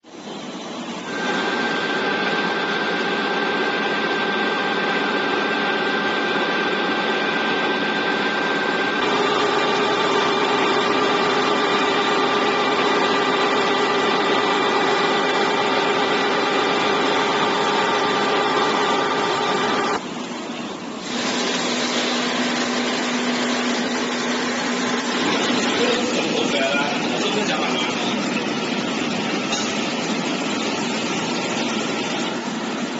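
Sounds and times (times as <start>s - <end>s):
machine drone with whining tones: 0.1s - 32.9s.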